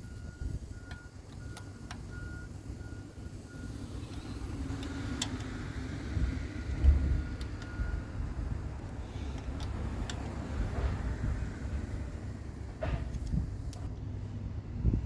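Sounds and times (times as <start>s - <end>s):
sharp clicks: 4.1s - 5.6s.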